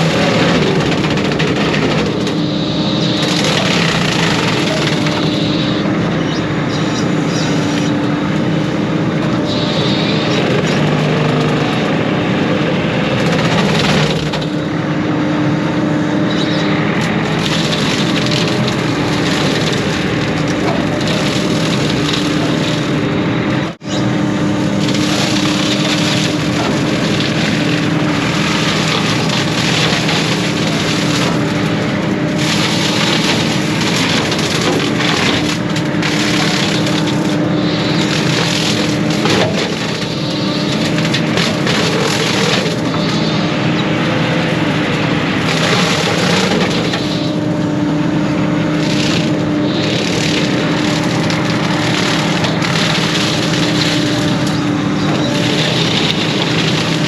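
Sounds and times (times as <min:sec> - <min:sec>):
brush cutter chewing brush: 0:00.0 - 0:05.8, 0:16.3 - 0:23.1, 0:24.4 - 0:57.0
wood crackling: 0:00.0 - 0:12.4, 0:15.8 - 0:57.0
excavator diesel engine running: 0:00.0 - 0:57.0.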